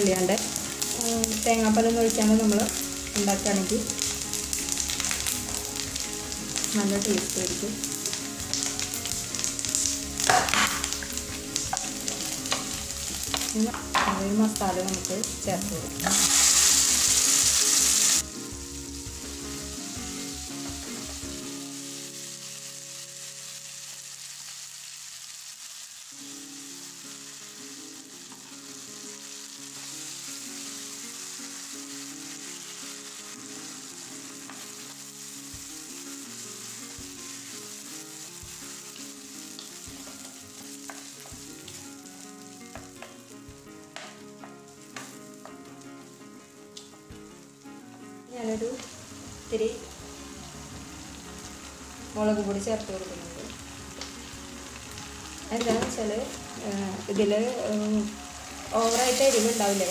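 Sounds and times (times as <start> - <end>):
paste sizzling in hot oil: 0.0 - 47.6, 48.3 - 59.9.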